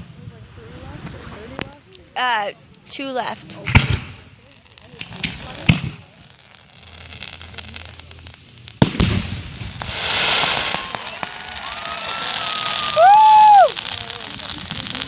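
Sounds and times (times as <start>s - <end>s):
crackling hiss of fireworks: 0.0s - 15.0s
firework bangs: 3.4s - 15.0s.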